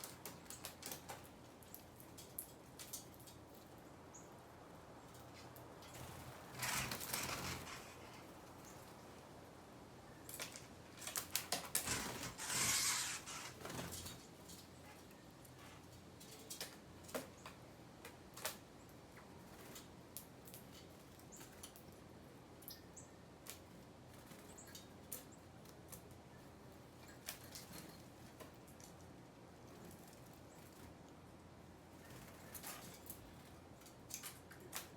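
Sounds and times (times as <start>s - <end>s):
birds pecking at seed: 5.1s - 9.1s, 10.2s - 18.7s
rustling: 6.0s - 8.8s, 11.7s - 14.2s.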